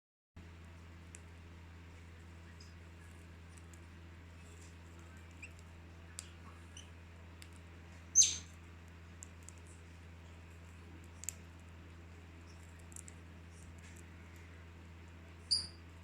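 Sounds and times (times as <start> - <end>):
steady low hum: 0.4 - 16.0
bird chirp: 8.1 - 8.5, 15.4 - 15.9
faint clicks and ticks: 12.4 - 14.6.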